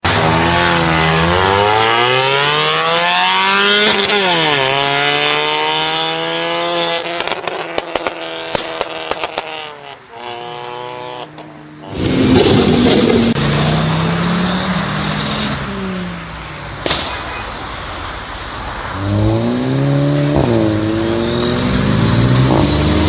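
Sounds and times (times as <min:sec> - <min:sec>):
car engine revving: 0:00.0 - 0:16.6, 0:18.8 - 0:23.0
exhaust pops and bangs: 0:07.0 - 0:09.7, 0:12.0 - 0:13.4
loud rush of noise: 0:11.8 - 0:23.0.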